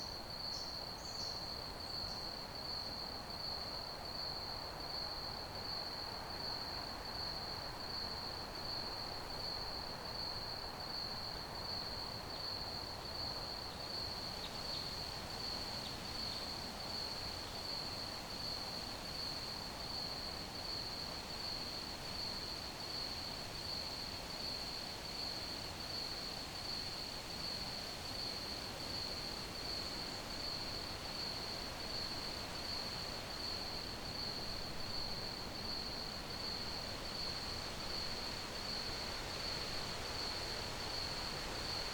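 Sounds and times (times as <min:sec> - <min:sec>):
crickets chirping: 0:12.4 - 0:41.9.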